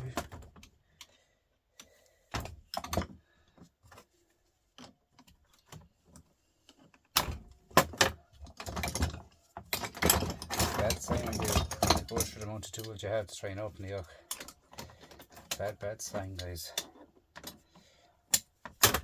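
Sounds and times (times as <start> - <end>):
metal tools knocking on steel: 9.8 - 12.9.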